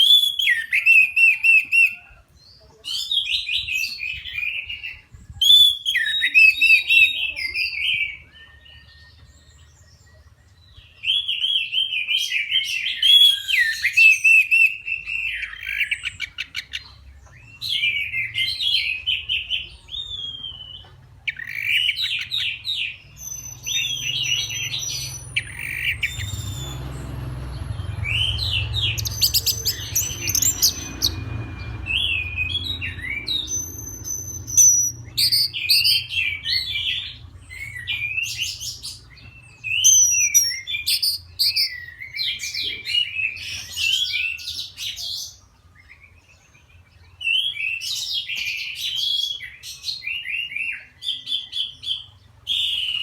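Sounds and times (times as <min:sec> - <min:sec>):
thrush singing: 0:21.4 - 0:41.8.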